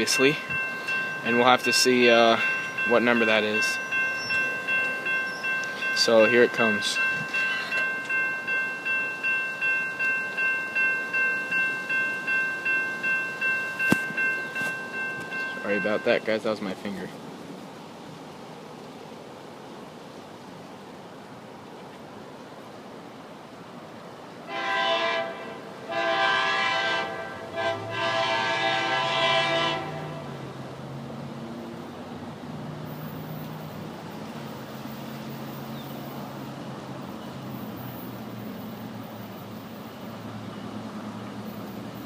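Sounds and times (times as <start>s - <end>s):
railroad crossing bell ringing: 0.0s - 16.4s
locomotive air horn: 24.5s - 30.4s.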